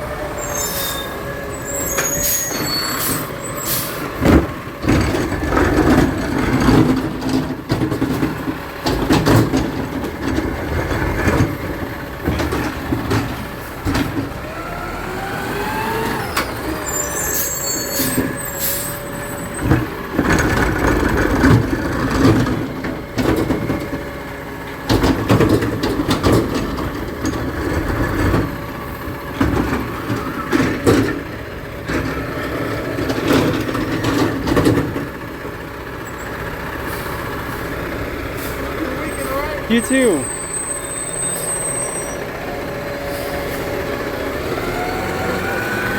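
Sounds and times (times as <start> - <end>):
garbage truck running: 0.0 - 45.9
knocks and clanks: 4.1 - 14.4, 24.7 - 35.2.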